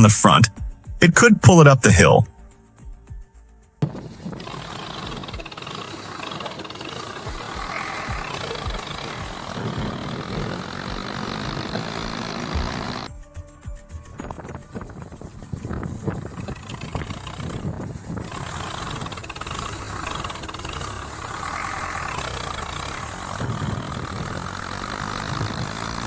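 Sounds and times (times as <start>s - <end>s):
tractor engine under load: 3.9s - 13.1s, 14.8s - 26.0s.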